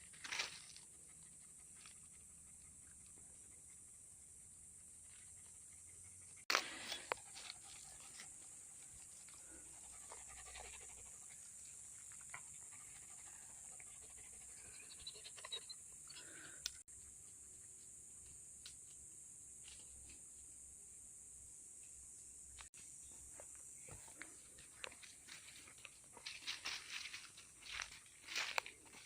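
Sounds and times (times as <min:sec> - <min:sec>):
dog panting: 0:07.4 - 0:11.6.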